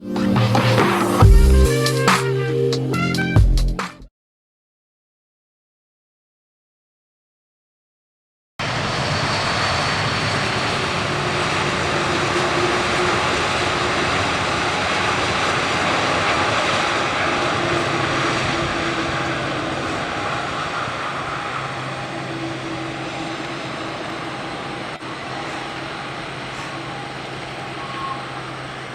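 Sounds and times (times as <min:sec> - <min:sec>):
jet airliner engines rushing: 0:00.0 - 0:02.6, 0:08.6 - 0:28.9.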